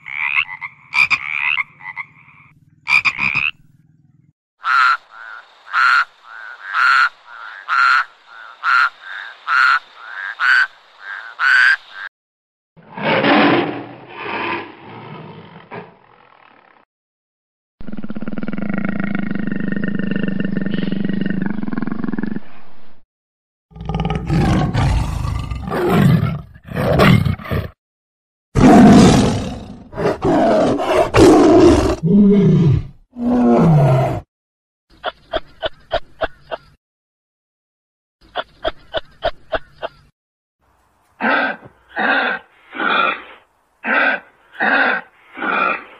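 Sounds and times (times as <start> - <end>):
frog croaking: 0.0 - 3.6, 4.6 - 12.1
tiger roaring and growling: 12.8 - 16.8, 17.8 - 22.3, 23.7 - 27.8, 28.6 - 34.3, 41.2 - 45.9.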